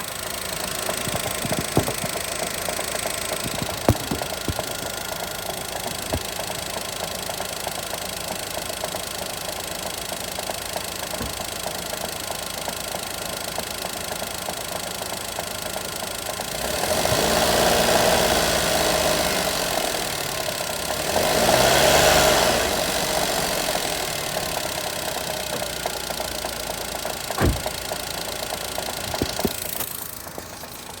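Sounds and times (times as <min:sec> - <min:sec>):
car engine idling with knocking: 0:00.0 - 0:31.0
engine revving: 0:16.5 - 0:20.0, 0:20.8 - 0:24.1.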